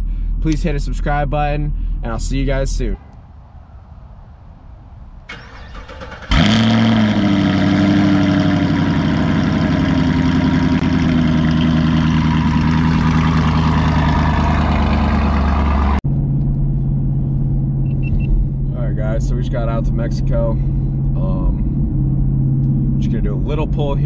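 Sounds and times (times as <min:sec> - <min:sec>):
car engine starting and idling: 0:05.2 - 0:24.0.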